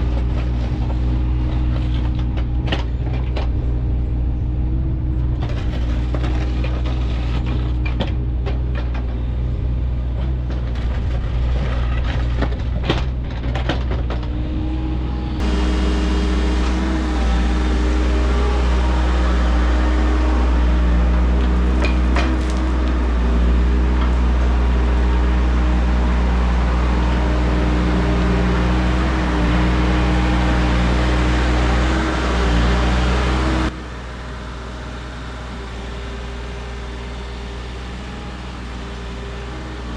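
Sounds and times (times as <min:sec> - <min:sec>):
machine engine running: 0:15.2 - 0:39.9.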